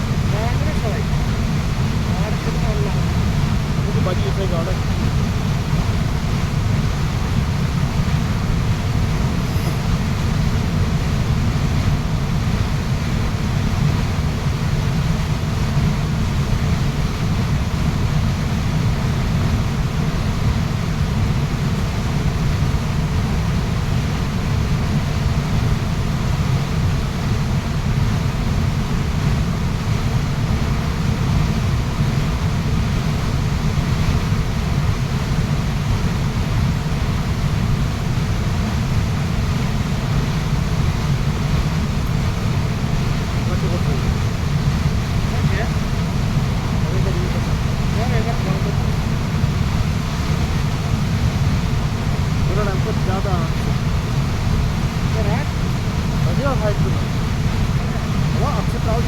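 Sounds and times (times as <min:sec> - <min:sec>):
waterfall rushing: 0:41.8 - 0:59.0.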